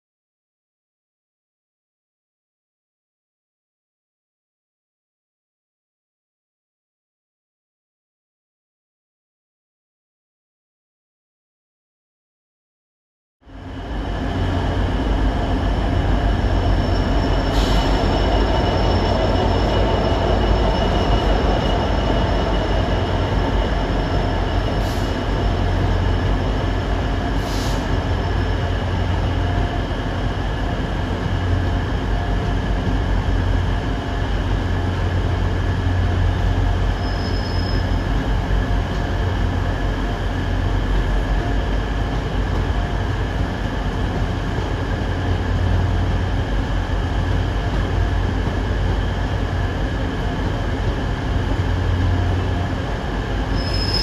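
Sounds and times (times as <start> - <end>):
freight train wheels rumbling: 13.5 - 54.0
wheel squeal: 16.2 - 26.4, 36.9 - 38.2, 53.5 - 54.0.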